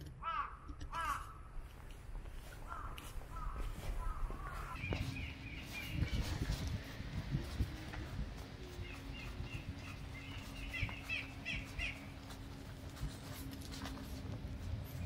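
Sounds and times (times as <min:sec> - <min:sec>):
footsteps on dirt path: 0:00.3 - 0:15.0
small birds chirping: 0:02.1 - 0:13.0.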